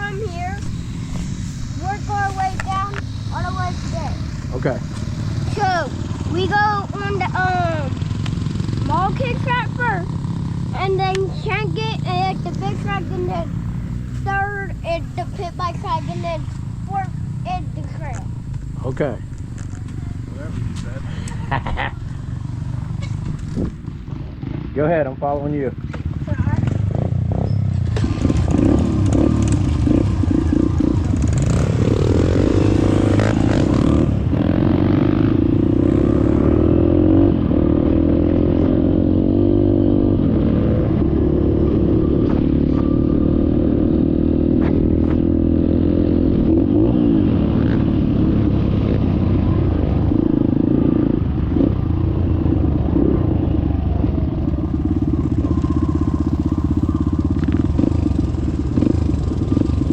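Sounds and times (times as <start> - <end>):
dirt bike engine revving: 0.0 - 25.2, 25.8 - 59.9.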